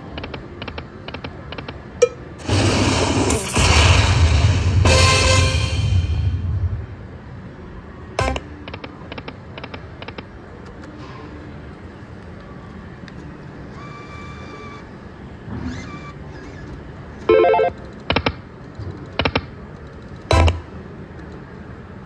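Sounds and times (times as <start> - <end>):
steady background noise: 0.0 - 22.0
loud sharp sound: 2.4 - 8.6
short electronic beeps: 8.2 - 8.5
slot machine chime: 8.2 - 8.5, 20.3 - 20.7.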